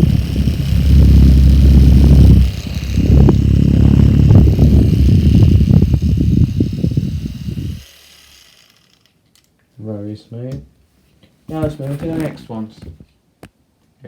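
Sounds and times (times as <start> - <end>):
small electric fan motor running: 0.0 - 9.5.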